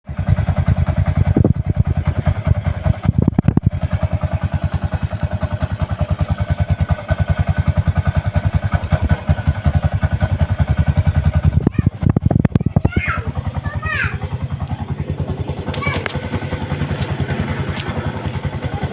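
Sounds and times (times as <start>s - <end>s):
motorcycle engine idling popping: 0.1s - 13.6s, 14.3s - 18.9s.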